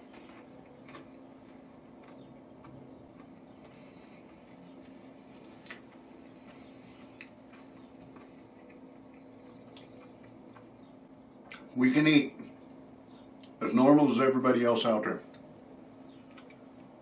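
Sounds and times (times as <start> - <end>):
chewing crispy chicken: 0.0 - 11.8, 15.3 - 17.0.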